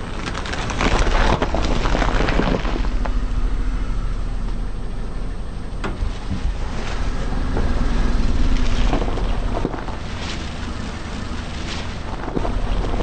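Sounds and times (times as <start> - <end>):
tyre crushing brittle object: 0.0 - 3.3, 8.4 - 13.0
car engine rumble: 0.0 - 13.0.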